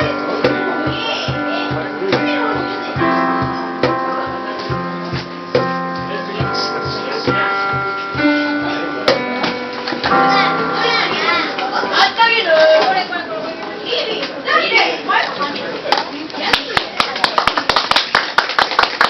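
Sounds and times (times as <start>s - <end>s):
cajon strikes: 0.0s - 13.1s
keyboard chords: 0.0s - 14.1s.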